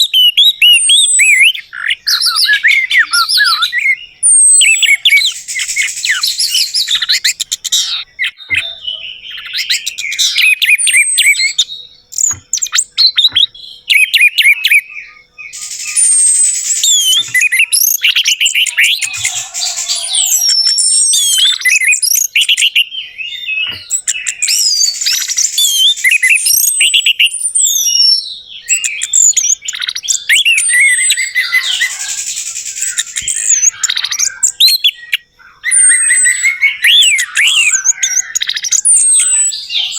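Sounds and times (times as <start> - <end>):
thrush singing: 15.5 - 22.4.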